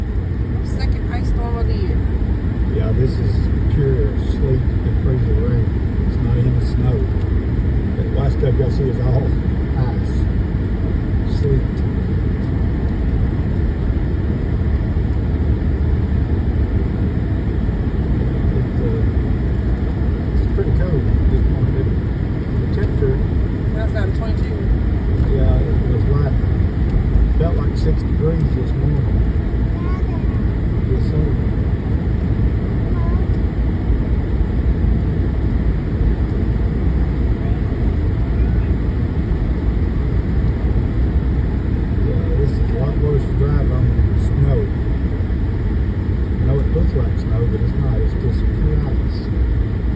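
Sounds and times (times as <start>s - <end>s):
vehicle engine and tyre rumble: 0.0s - 49.9s.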